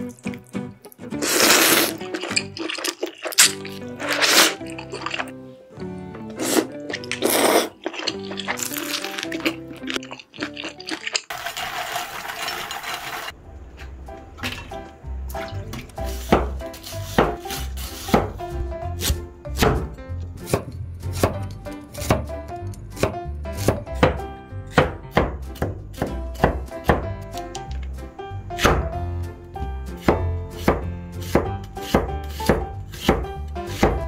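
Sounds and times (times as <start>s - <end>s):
knife chopping on cutting board: 16.1s - 18.4s, 19.0s - 21.4s, 22.0s - 22.3s, 23.0s - 27.2s, 28.6s - 29.0s, 30.0s - 34.0s.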